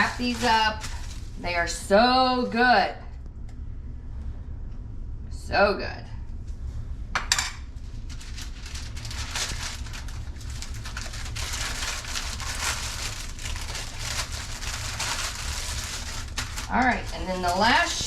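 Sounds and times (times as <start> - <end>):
wax paper crinkling: 0.0 - 1.5, 7.8 - 18.0.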